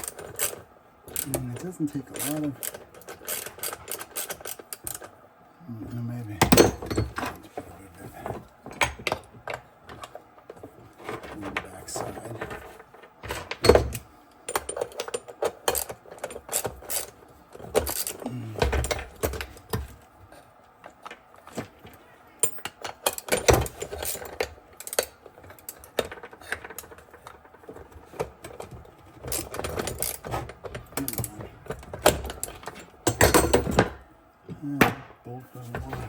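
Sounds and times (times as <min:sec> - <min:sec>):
wrench working at bolt: 0:02.1 - 0:05.0.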